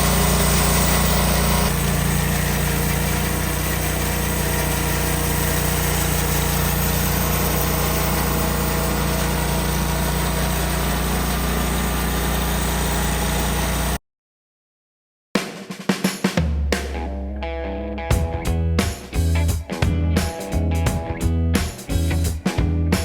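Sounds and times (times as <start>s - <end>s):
engine droning steadily: 0.0s - 14.0s.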